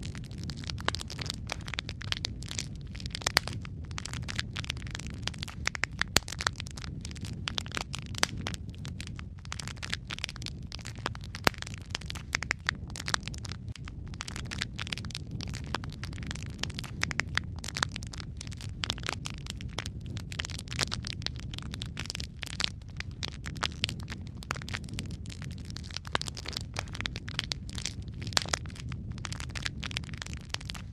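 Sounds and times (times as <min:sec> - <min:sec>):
fire crackles and pops: 0:00.0 - 0:30.9
low rumble of flames: 0:00.0 - 0:30.9.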